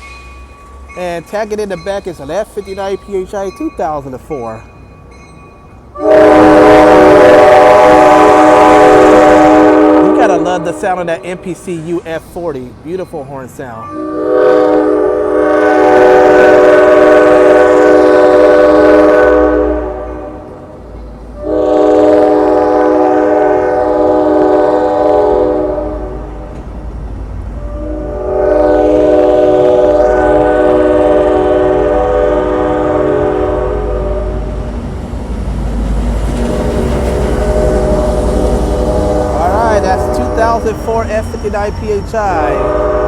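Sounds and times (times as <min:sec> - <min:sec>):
train air horn blasts: 0:06.0 - 0:11.4, 0:13.9 - 0:20.6, 0:21.4 - 0:26.3, 0:27.6 - 0:34.4, 0:37.4 - 0:41.2, 0:42.4 - 0:43.0.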